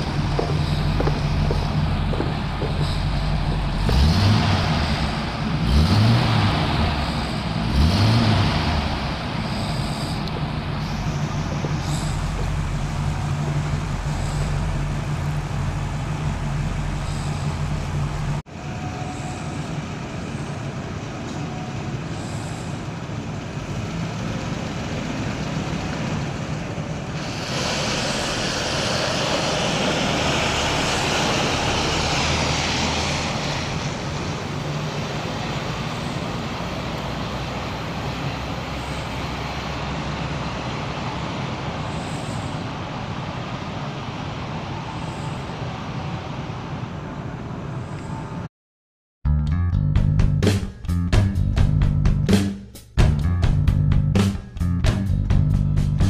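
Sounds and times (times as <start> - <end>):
tyres hissing: 0.0 - 7.8, 8.4 - 23.0, 27.1 - 43.8
car engine idling: 0.0 - 48.1
car driving slowly past: 0.0 - 48.3.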